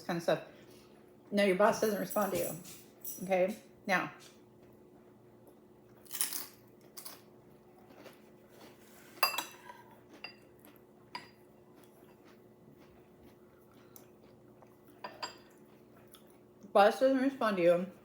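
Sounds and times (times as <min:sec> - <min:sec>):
cutlery clinking against bowl: 0:09.2 - 0:10.5, 0:15.0 - 0:15.6.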